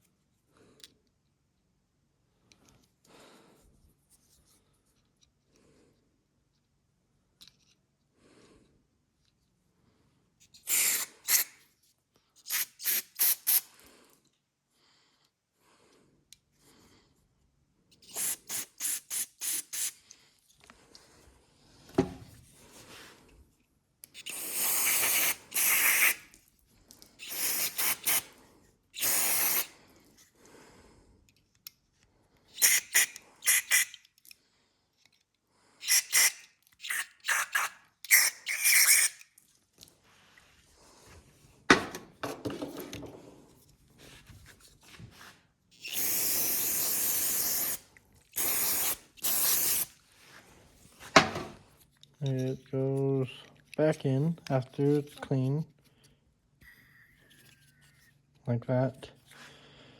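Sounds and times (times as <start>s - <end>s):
aerosol spray hissing: 18.0s - 20.0s, 24.2s - 26.3s, 27.2s - 28.3s, 29.0s - 29.8s, 32.6s - 34.0s, 45.8s - 47.8s, 48.4s - 49.9s.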